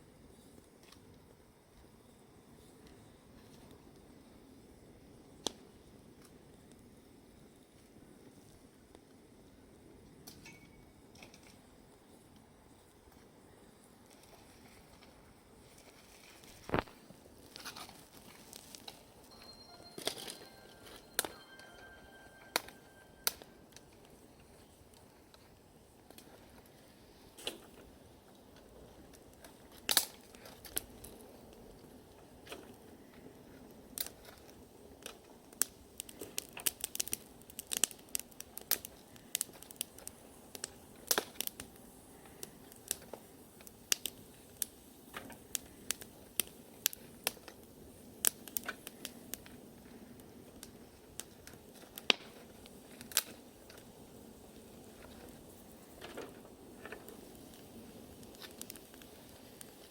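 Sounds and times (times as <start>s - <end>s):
bonfire crackling and popping: 0.0s - 59.9s.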